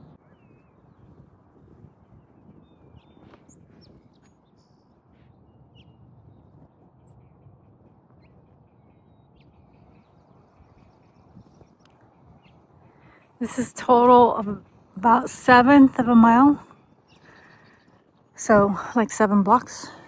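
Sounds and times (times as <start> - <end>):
faint birds chirping: 0.1 - 20.0
low steady background hiss: 13.4 - 16.8, 18.3 - 20.0.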